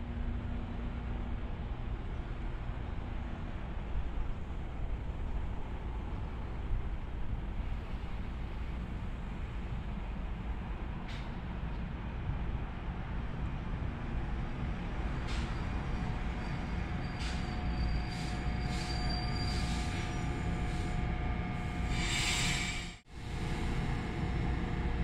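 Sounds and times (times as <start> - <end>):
train rumbling on rails: 0.0 - 25.0
thin steady squeal: 15.3 - 23.0.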